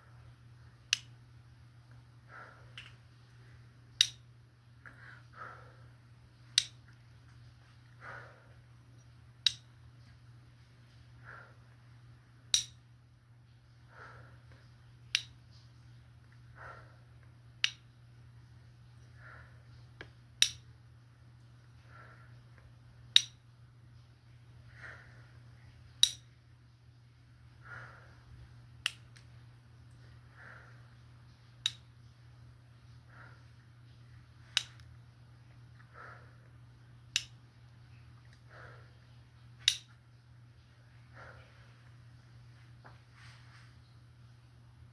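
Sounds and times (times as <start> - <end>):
faint low hum: 0.0 - 44.9
sharp snaps: 0.8 - 1.2, 4.0 - 4.3, 6.4 - 7.0, 9.4 - 9.8, 12.4 - 12.9, 15.0 - 15.5, 17.6 - 18.0, 20.0 - 20.7, 23.1 - 23.5, 26.0 - 26.3, 28.8 - 30.5, 31.5 - 32.0, 34.4 - 35.0, 37.0 - 37.5, 39.6 - 40.0.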